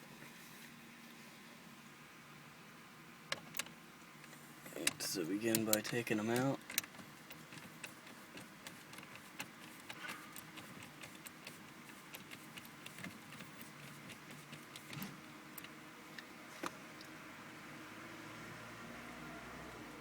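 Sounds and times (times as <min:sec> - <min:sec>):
screwdriver clicking on plastic screw: 0:04.7 - 0:15.7.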